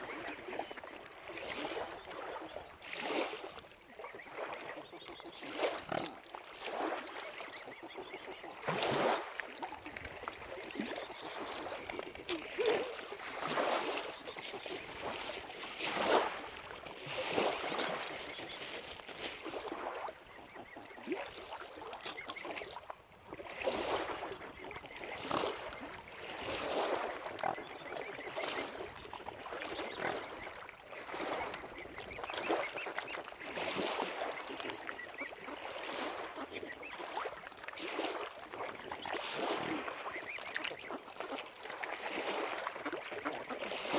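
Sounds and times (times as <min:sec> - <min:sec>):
waterfowl calling: 0:04.0 - 0:22.8, 0:24.9 - 0:37.3.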